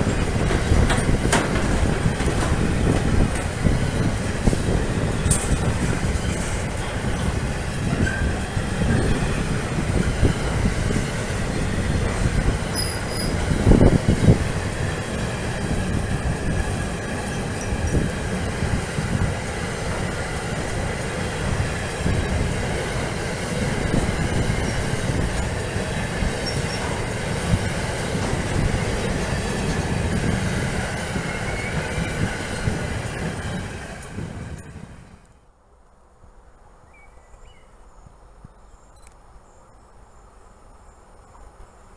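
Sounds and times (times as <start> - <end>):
train wheel squeal: 0.0 - 10.4, 12.5 - 13.9, 17.0 - 18.2, 24.2 - 27.2, 29.3 - 34.2
freight train wheels rumbling: 0.0 - 35.5.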